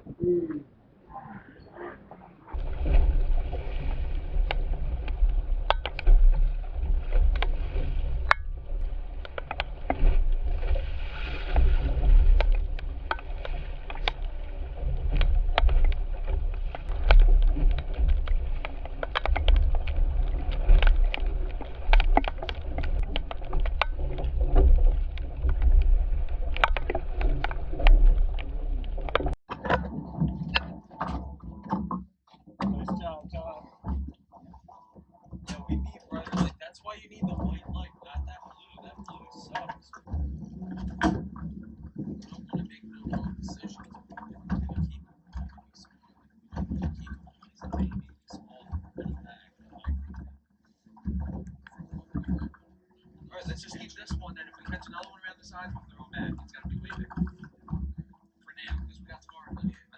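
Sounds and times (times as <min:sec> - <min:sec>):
boat engine rumble: 0:00.0 - 0:31.7, 0:35.4 - 0:45.0, 0:53.3 - 0:58.0.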